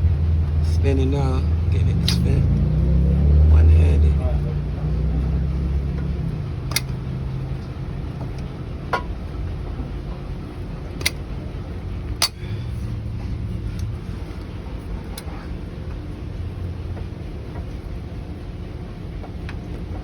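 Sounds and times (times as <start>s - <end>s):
low rumble of repair shop: 0.0s - 20.0s
sharp clicks of hand tools: 2.0s - 2.3s, 6.7s - 7.0s, 12.2s - 12.5s.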